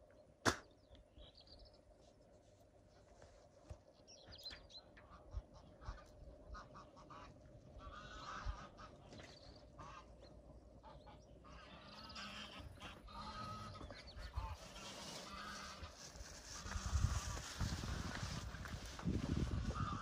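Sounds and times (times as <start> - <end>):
faint fowl calls: 4.3 - 20.0.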